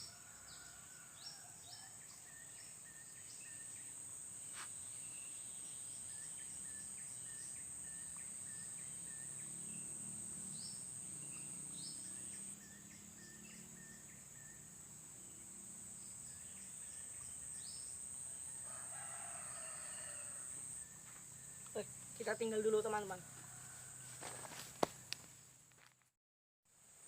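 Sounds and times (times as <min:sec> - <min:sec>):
high-pitched insect drone: 0:05.0 - 0:23.4.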